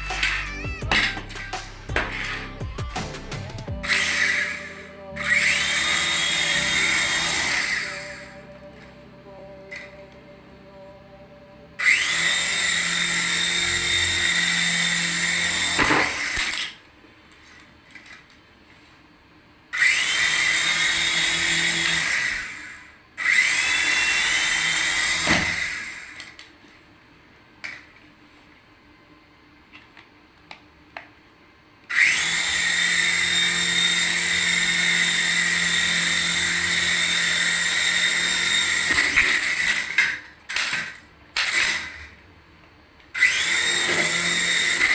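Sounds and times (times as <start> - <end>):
rising whine of rotors: 0.0 - 16.6, 33.0 - 39.8
toy helicopter rotors whirring: 3.8 - 8.3, 31.9 - 42.0, 43.2 - 44.9.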